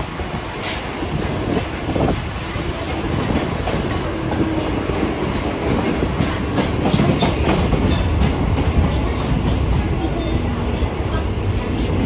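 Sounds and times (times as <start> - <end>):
wheels rumbling on rails: 0.0 - 12.0
clickety-clack over rail joints: 0.2 - 12.0.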